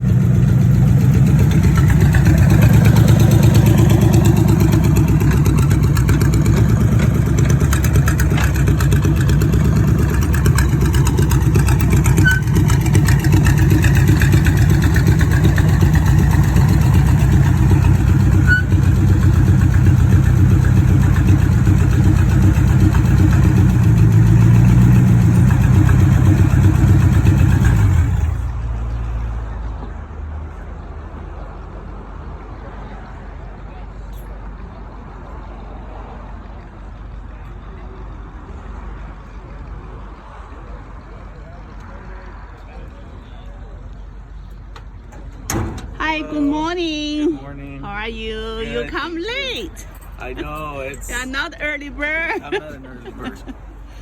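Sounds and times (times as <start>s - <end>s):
car engine idling: 0.0s - 28.6s, 40.8s - 54.0s.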